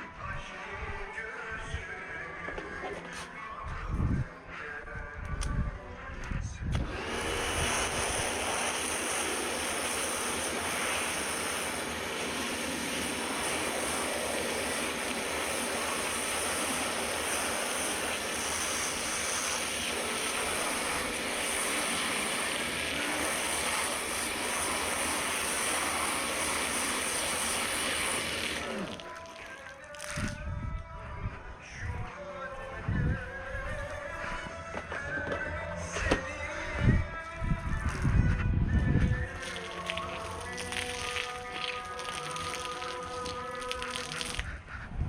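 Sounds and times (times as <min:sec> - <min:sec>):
pressure washer spraying water: 0:06.8 - 0:29.8, 0:39.3 - 0:44.5.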